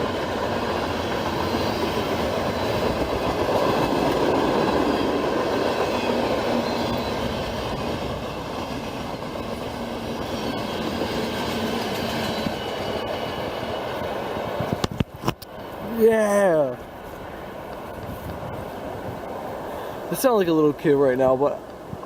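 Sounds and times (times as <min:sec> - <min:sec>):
wheels on rails: 0:00.0 - 0:20.8
freight train rumbling past: 0:00.0 - 0:22.0.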